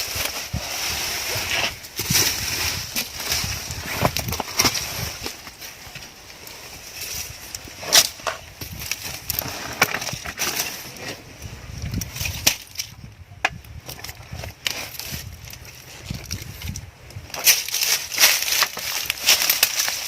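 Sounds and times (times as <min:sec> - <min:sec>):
wood snapping and knocking: 0:11.9 - 0:14.8, 0:15.5 - 0:20.0.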